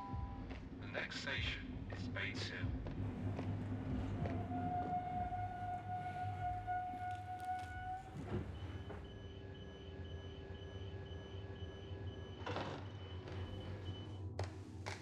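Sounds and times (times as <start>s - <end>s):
train carriage rumble: 0.1s - 9.1s
door warning beeps: 7.1s - 14.4s.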